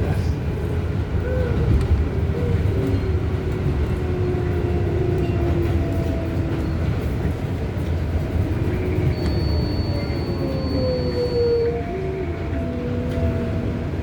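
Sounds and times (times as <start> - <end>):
subway car rumbling on track: 0.0 - 14.0.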